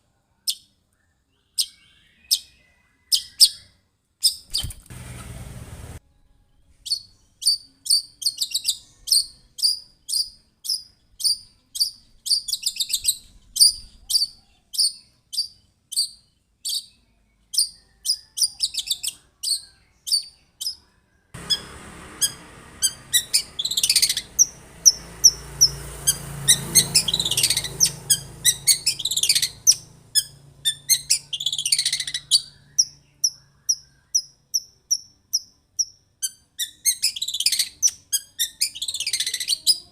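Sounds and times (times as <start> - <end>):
low hum: 4.9 - 6.7
harsh downward-sweeping bird calls: 21.4 - 34.2.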